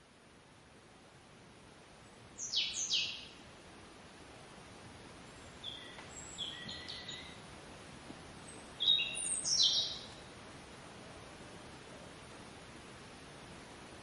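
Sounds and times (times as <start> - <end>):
steady hiss: 0.0 - 14.0
small birds chirping: 2.0 - 3.4, 5.3 - 7.4, 8.4 - 10.3.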